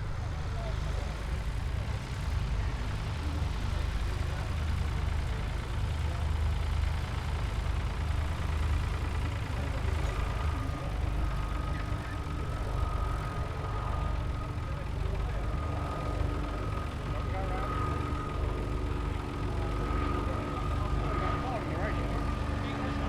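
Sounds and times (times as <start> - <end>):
light aircraft engine and propeller: 0.0 - 23.0.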